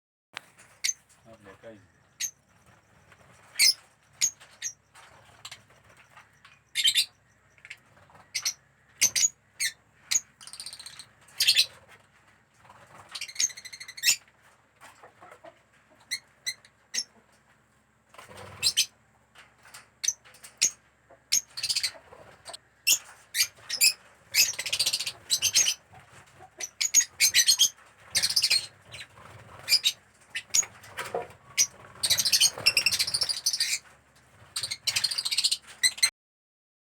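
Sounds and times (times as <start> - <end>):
lovebirds chirping: 0.4 - 11.7, 21.3 - 25.8, 31.4 - 33.8, 34.6 - 36.1.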